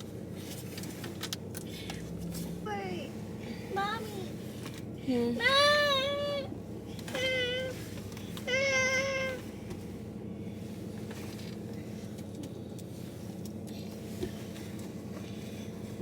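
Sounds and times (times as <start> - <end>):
child whining: 8.5 - 9.4.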